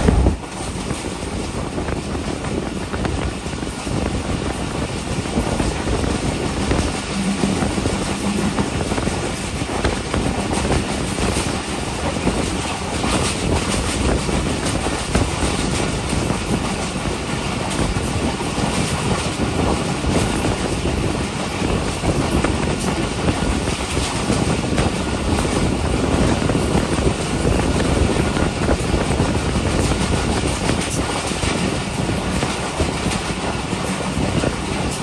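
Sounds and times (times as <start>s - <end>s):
rushing air: 0.0s - 12.4s
train wheels rumbling on rails: 0.0s - 35.0s.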